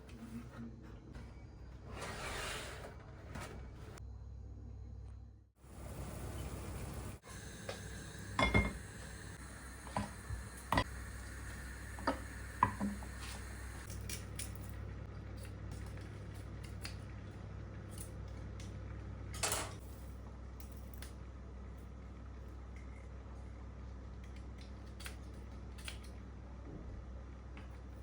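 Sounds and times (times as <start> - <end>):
steady low hum: 3.2 - 24.6
dishes and cutlery clinking: 8.4 - 8.8.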